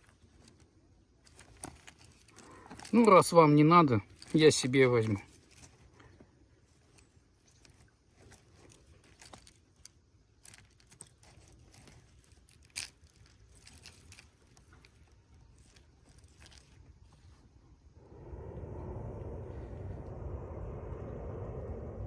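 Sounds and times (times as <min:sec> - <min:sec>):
handling clicks and rustling: 0:00.0 - 0:17.4.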